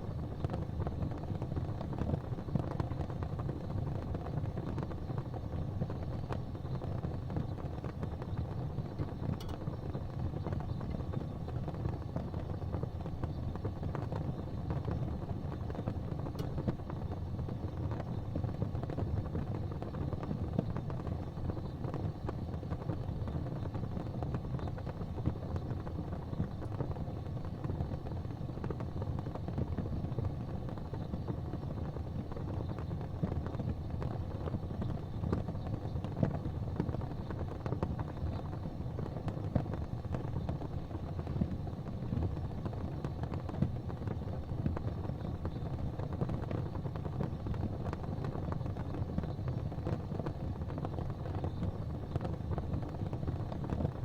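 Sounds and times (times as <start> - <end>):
gas fireplace flames rumbling: 0.0 - 54.0
faint ticks: 9.0 - 12.3.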